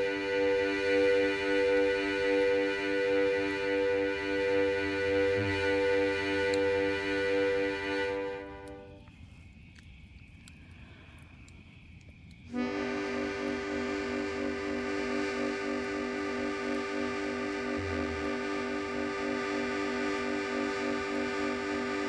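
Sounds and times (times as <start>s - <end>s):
free-reed instrument chord: 0.0s - 9.0s, 12.6s - 22.0s
faint clicks: 5.6s - 22.0s.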